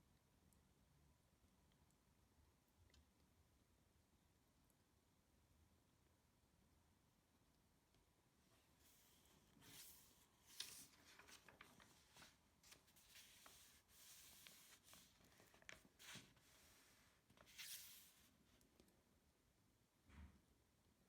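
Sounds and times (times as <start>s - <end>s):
paper rustling: 8.8s - 18.7s.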